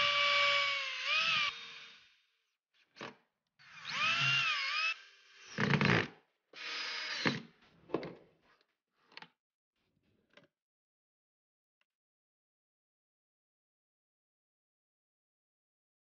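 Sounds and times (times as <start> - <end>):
electric drill whining: 0.0 - 2.2, 3.6 - 7.4.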